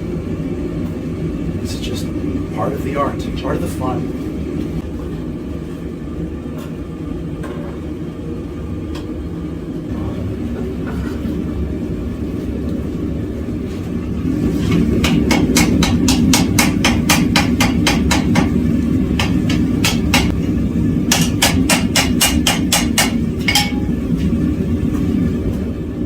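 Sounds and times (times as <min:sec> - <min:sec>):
hammer blows on hot steel: 0:21.1 - 0:24.0.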